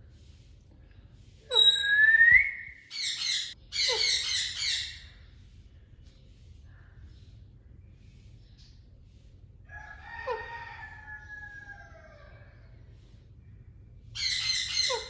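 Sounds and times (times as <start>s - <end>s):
rooster crowing: 9.7s - 12.6s.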